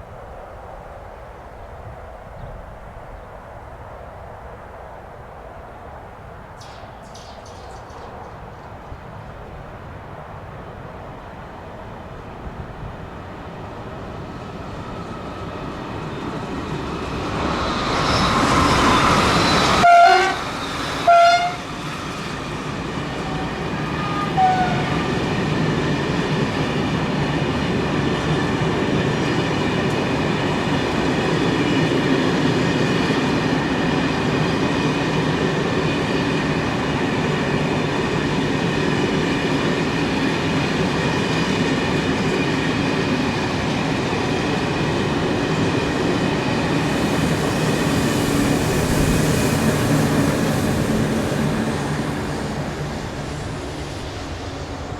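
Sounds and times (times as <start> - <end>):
train horn blasts: 19.5 - 21.8, 23.2 - 25.2.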